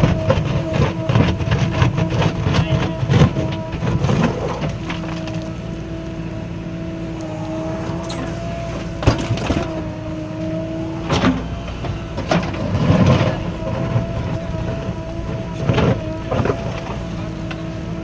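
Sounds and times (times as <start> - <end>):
diesel engine running with whine: 0.0 - 18.0
knocks and thuds: 8.8 - 9.8.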